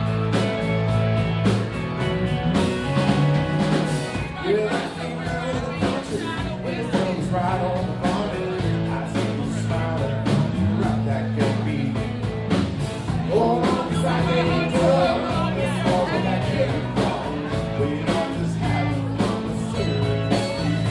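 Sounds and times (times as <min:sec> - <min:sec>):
bass guitar: 0:00.0 - 0:20.9
drums: 0:00.0 - 0:20.9
electric guitar: 0:00.0 - 0:20.9
person singing: 0:04.1 - 0:12.2, 0:13.1 - 0:20.9.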